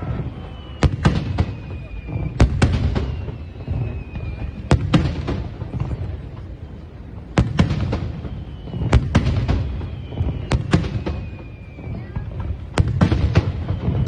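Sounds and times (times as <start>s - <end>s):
faint falling whistle: 0.0s - 6.0s, 7.4s - 14.0s.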